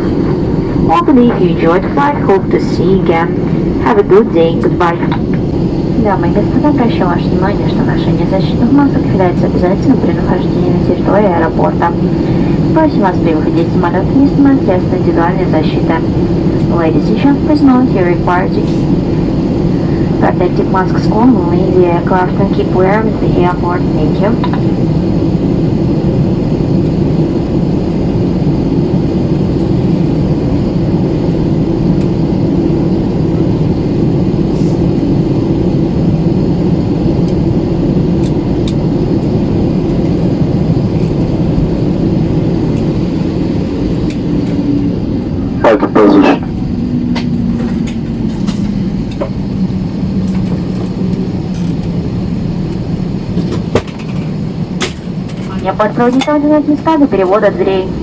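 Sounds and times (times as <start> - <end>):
voice over cabin speaker: 0.0 - 19.0, 19.8 - 24.6, 45.2 - 47.8, 55.3 - 58.0
airplane cabin hum: 0.0 - 58.0.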